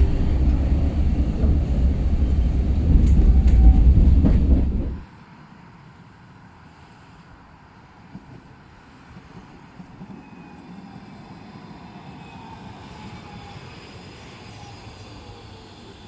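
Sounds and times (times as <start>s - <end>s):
tram rumbling on rails: 0.0s - 5.2s
faint tram whine: 0.0s - 16.0s.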